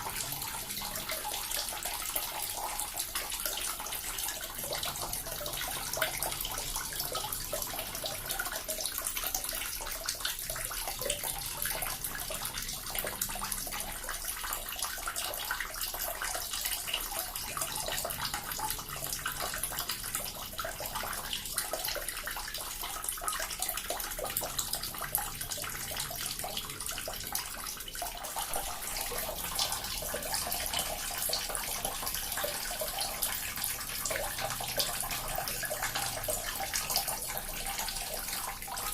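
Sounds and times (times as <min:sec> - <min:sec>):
water fountain splashing: 0:00.0 - 0:38.9.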